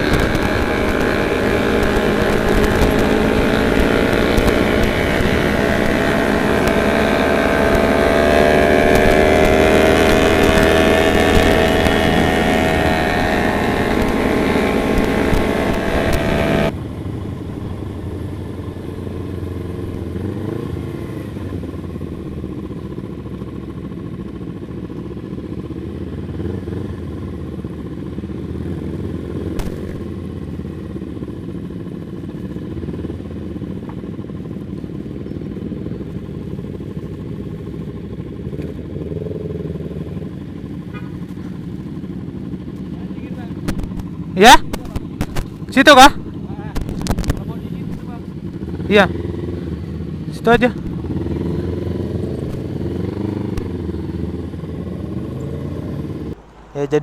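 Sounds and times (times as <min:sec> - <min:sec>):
motorcycle engine running: 0:00.0 - 0:57.0
low engine rumble: 0:26.9 - 0:57.0.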